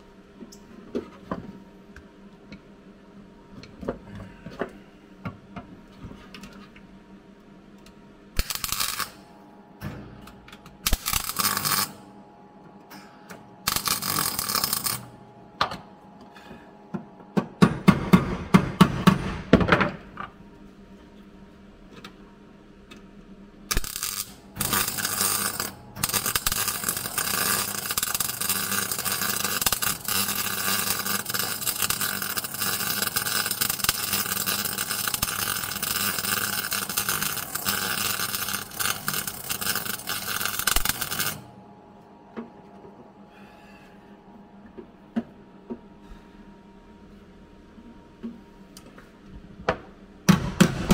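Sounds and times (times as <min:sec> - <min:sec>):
welding arc crackling on steel: 0:08.4 - 0:09.2, 0:10.8 - 0:12.0, 0:13.6 - 0:15.1, 0:23.7 - 0:41.5.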